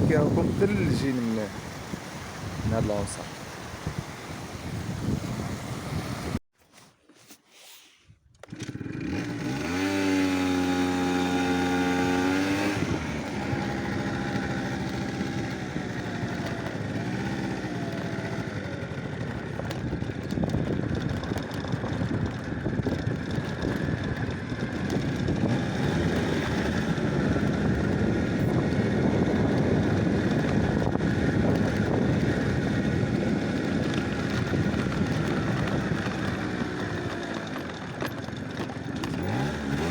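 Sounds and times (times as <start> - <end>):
engine revving: 8.4 - 39.9.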